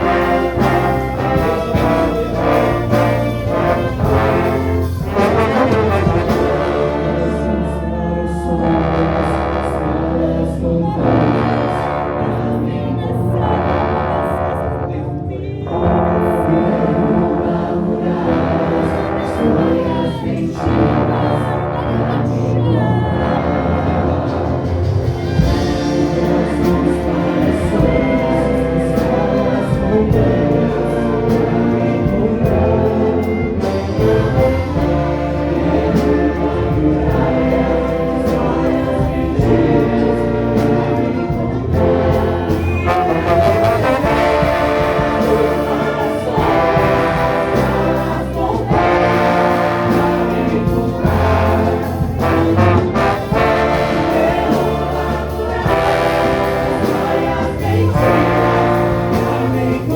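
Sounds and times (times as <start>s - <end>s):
choir singing: 0.0s - 59.9s
orchestra with brass section: 0.0s - 59.9s.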